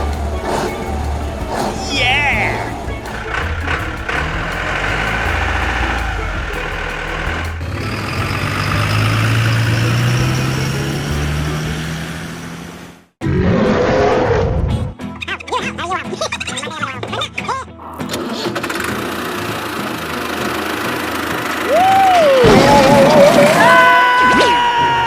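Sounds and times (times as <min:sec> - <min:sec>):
truck engine droning: 0:00.0 - 0:13.1.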